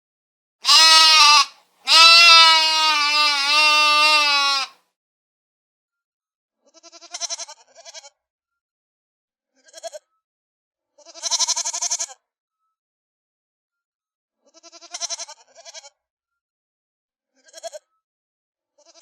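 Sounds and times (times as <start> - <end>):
quavering bleats: 0.6 - 4.8, 11.0 - 12.1, 14.6 - 15.9.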